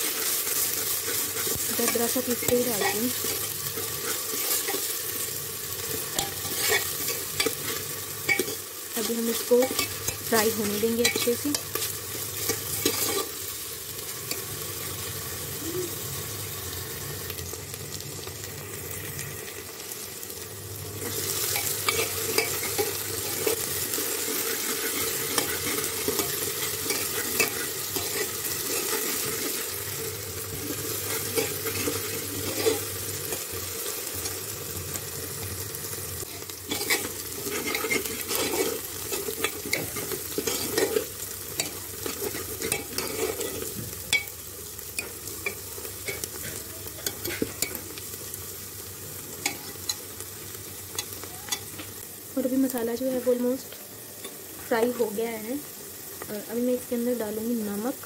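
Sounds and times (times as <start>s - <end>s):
paste sizzling in oil: 0.0s - 58.0s
steel spoon scraping a pot: 6.1s - 8.6s, 9.3s - 13.4s, 21.0s - 29.7s, 30.5s - 33.4s, 36.7s - 44.3s.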